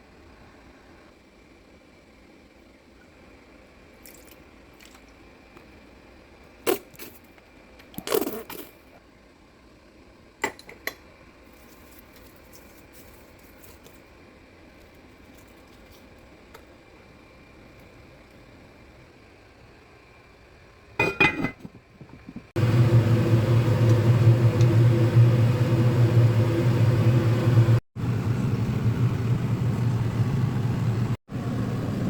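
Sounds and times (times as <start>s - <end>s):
kitchen utensils clinking: 21.0s - 21.7s.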